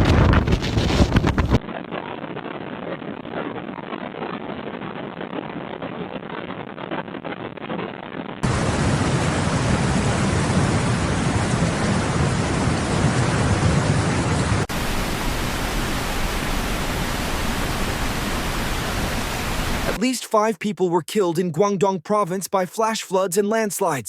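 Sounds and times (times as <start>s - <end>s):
water rushing: 8.4s - 20.0s.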